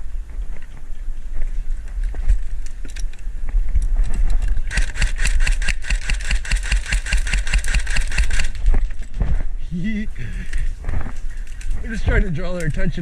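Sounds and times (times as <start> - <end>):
airsoft gun full-auto burst: 4.7 - 8.6.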